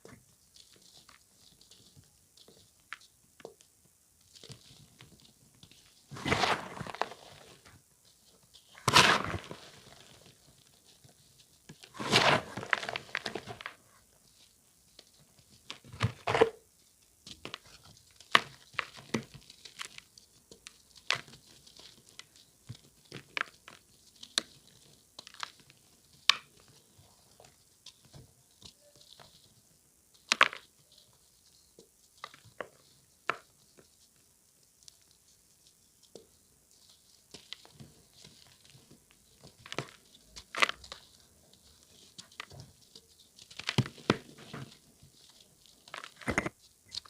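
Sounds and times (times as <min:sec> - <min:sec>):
charcoal block crunching: 0:06.1 - 0:07.8, 0:08.7 - 0:10.4, 0:11.8 - 0:13.8.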